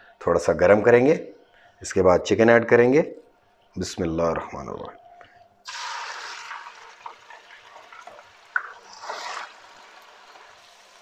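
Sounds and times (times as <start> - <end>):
chicken sizzling in hot oil: 5.7 - 11.0.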